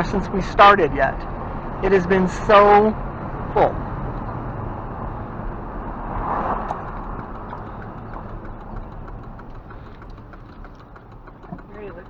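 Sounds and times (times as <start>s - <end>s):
light ticking and rattling: 0.0s - 12.0s
truck engine and road rumble: 0.0s - 12.0s.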